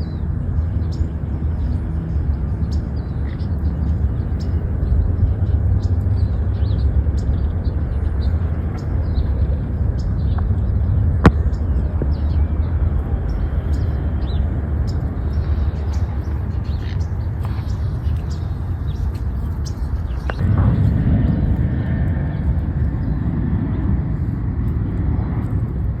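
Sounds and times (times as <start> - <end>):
small birds chirping: 0.0 - 26.0
wind buffeting microphone: 0.0 - 26.0.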